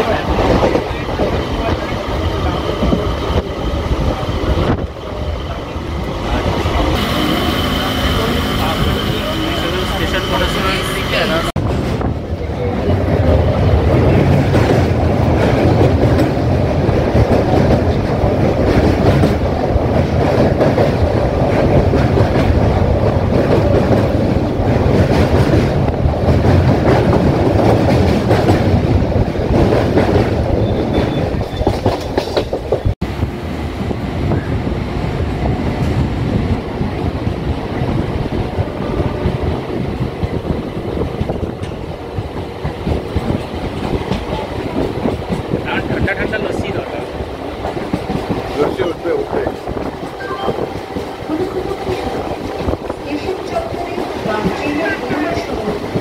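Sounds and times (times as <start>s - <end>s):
train rumble: 0.0s - 56.0s.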